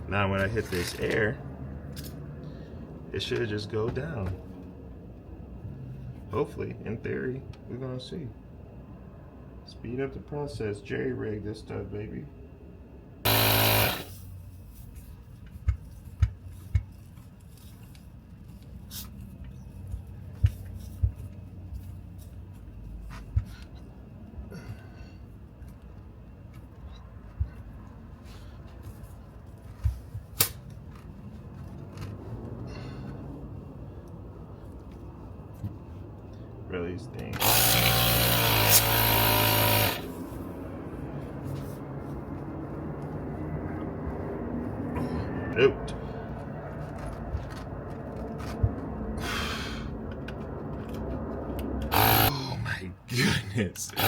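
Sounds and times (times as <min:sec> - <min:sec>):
steady hum: 0:12.9 - 0:15.6.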